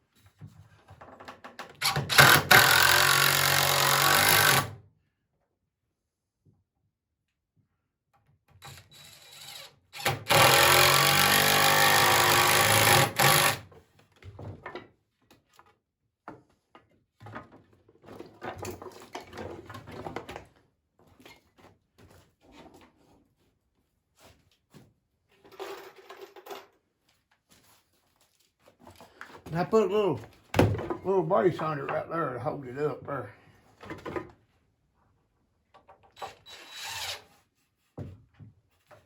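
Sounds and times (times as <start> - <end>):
power drill driving a screw: 1.8 - 4.7, 8.6 - 13.6, 36.2 - 37.4.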